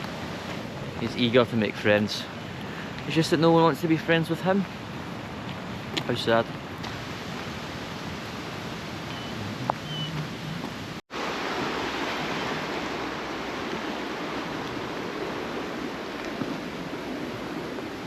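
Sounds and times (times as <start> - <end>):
heavy rain hissing: 6.8 - 16.0.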